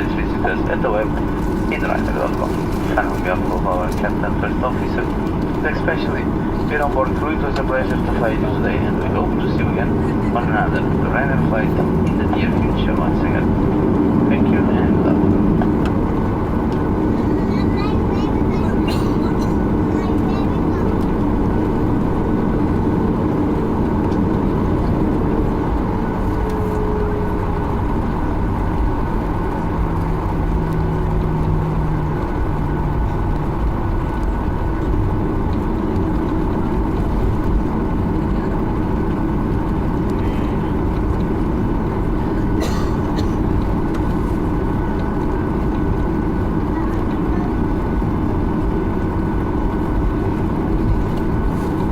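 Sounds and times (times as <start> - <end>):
airplane cabin engine hum: 0.0 - 51.9.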